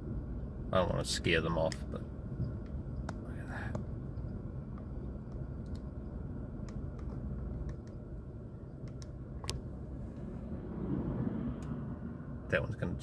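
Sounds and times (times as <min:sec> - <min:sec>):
car engine rumble inside car: 0:00.0 - 0:13.0
small clicks: 0:04.7 - 0:05.9.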